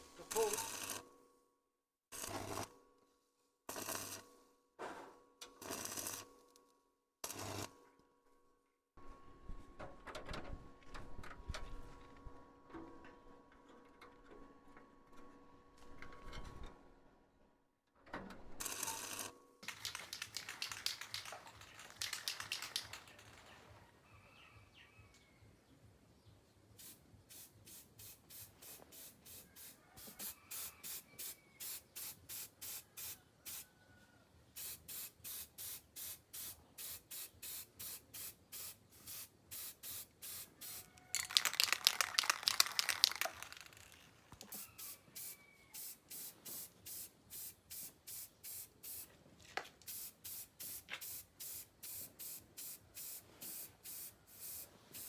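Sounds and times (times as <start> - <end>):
hissing bursts: 19.6 - 23.7, 39.0 - 47.0.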